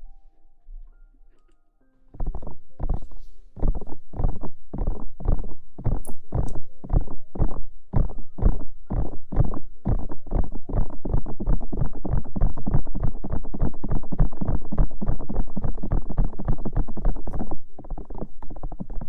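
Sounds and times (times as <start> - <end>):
soft muffled strokes on microphone: 2.2 - 8.6.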